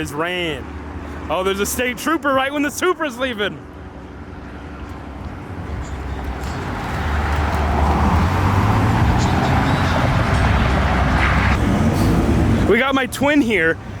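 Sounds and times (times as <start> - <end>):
car engine rumbling: 5.3 - 14.0.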